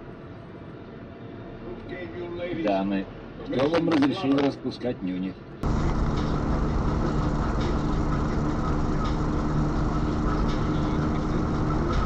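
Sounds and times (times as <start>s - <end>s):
road noise: 0.0s - 12.0s
vehicle engine drone: 5.6s - 12.0s.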